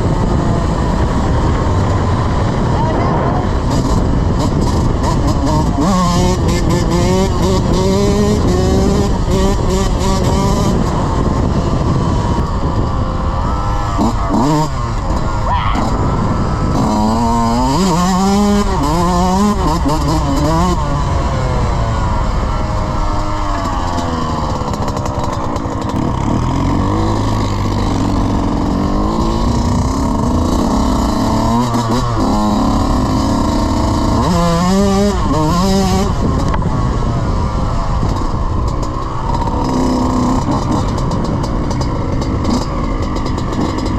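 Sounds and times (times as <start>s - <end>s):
off-road vehicle engine revving: 0.0s - 43.9s.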